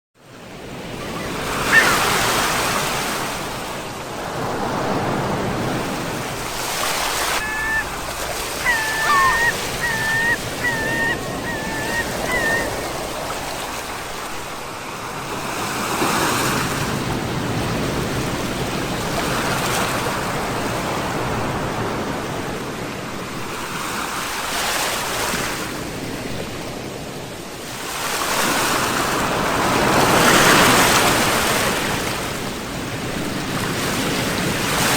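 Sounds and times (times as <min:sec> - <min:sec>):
sea waves breaking: 0:00.4 - 0:22.2
high chirps: 0:07.4 - 0:13.0.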